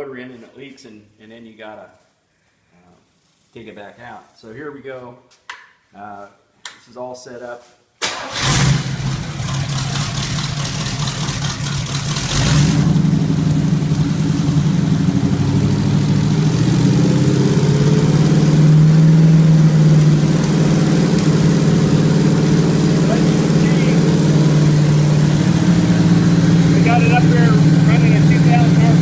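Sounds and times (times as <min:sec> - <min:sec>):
car engine running: 0:08.9 - 0:29.0.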